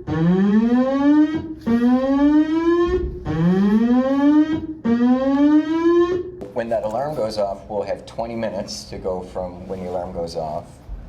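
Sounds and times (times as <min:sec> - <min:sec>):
alarm rising whoop: 0:00.0 - 0:06.3.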